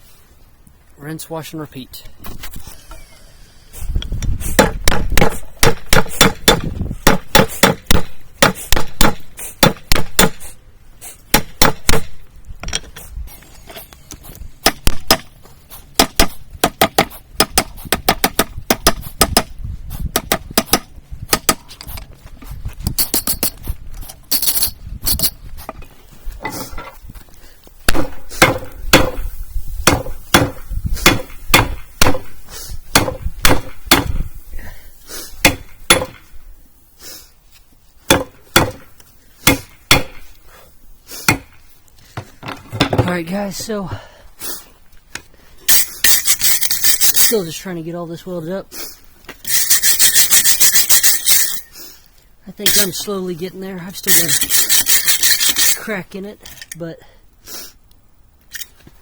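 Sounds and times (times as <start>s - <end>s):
hammer striking hot metal: 29.8s - 32.3s.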